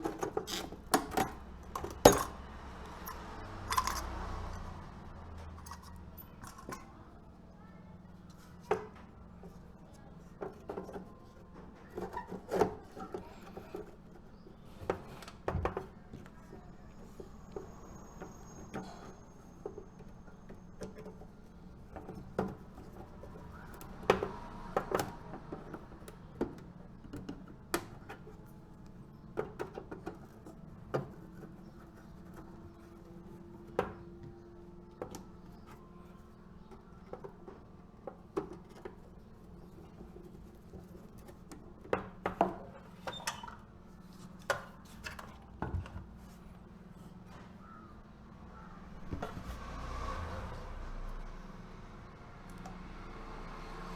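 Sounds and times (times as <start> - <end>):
small tools clicking and knocking: 0.0 - 7.1.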